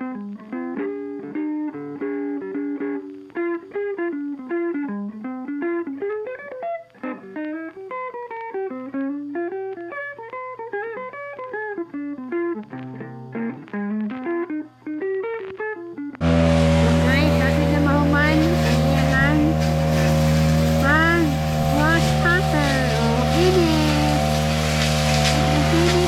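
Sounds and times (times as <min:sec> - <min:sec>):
plucked guitar melody: 0:00.0 - 0:26.0
low bass: 0:16.2 - 0:26.0.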